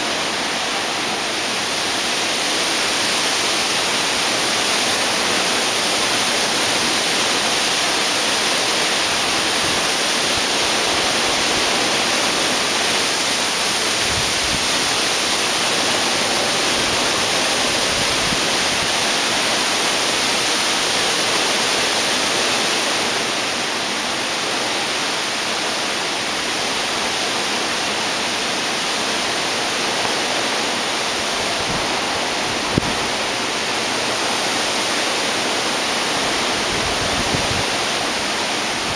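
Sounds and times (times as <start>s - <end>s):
storm wind rushing: 36.3s - 38.9s.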